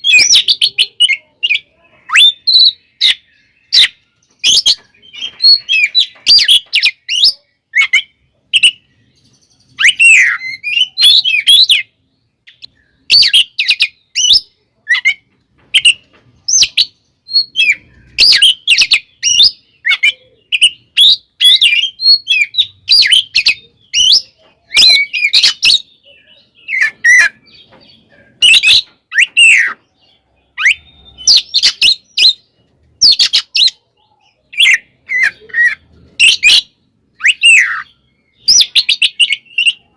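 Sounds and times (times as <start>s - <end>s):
bird whistles and chirps: 0.0s - 11.9s, 15.8s - 39.9s.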